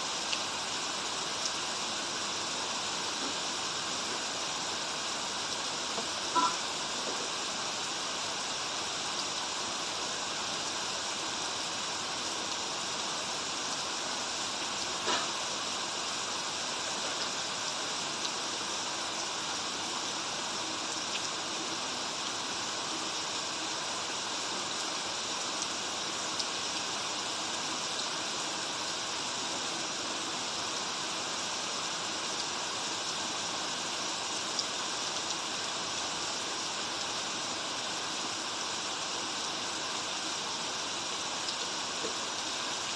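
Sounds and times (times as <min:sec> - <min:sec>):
steady rain: 0:00.0 - 0:42.9
running water: 0:00.1 - 0:19.4.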